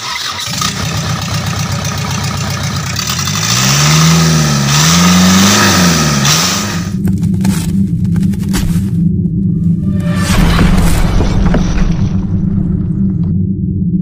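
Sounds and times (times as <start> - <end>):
diesel truck engine revving: 0.0 - 8.2.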